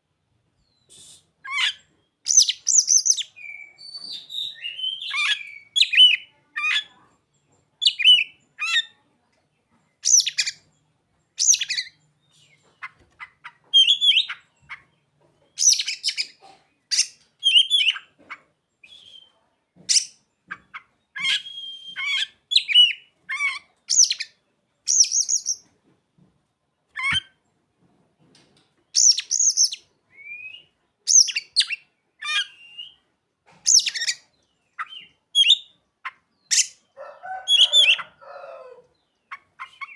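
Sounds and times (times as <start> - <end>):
bird singing chirps and whistles: 0.8 - 6.2, 17.4 - 18.0, 18.8 - 19.4, 21.2 - 23.0, 24.9 - 25.6, 29.0 - 33.0, 34.8 - 35.7.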